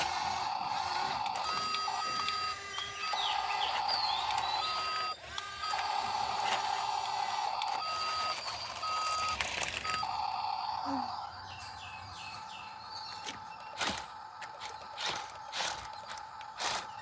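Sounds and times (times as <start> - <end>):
small electric motor whining: 0.0 - 17.0
faint bird chirps: 0.2 - 5.2, 9.9 - 14.0.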